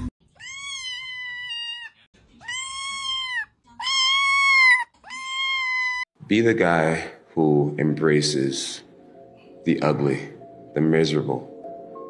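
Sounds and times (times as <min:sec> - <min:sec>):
kitten meowing: 0:00.3 - 0:06.0.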